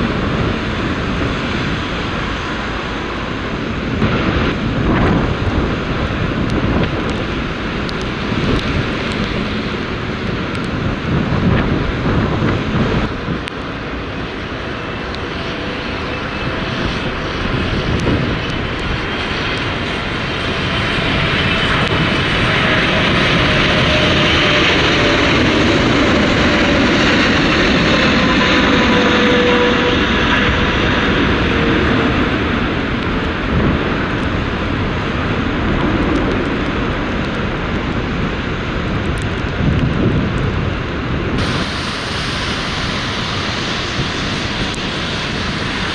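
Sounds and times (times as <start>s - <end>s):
falling engine whine: 0.0s - 45.9s
jet airliner engine passing: 0.0s - 45.9s.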